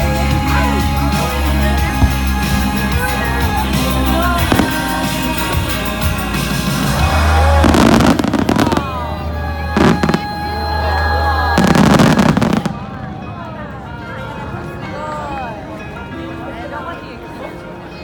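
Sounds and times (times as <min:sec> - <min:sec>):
pop music: 0:00.0 - 0:12.7
fireworks bursting and crackling: 0:00.6 - 0:09.2, 0:09.8 - 0:10.6, 0:11.5 - 0:13.0.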